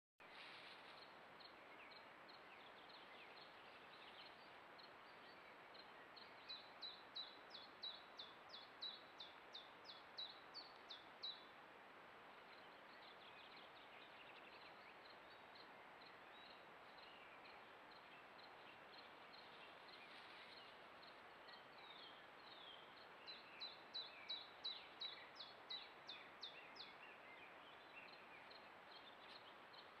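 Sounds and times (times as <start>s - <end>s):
faint steady hiss: 0.2s - 30.0s
songbird singing: 0.2s - 30.0s
faint bird chirps: 12.5s - 30.0s.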